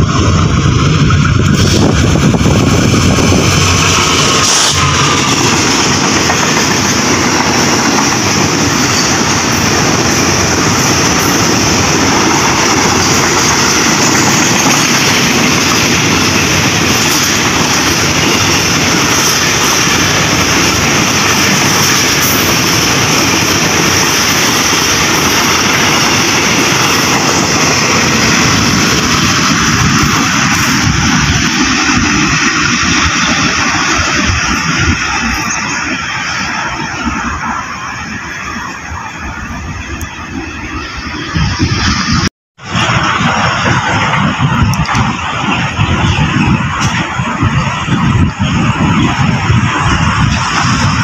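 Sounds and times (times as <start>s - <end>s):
train wheels on rails: 0.0s - 51.0s.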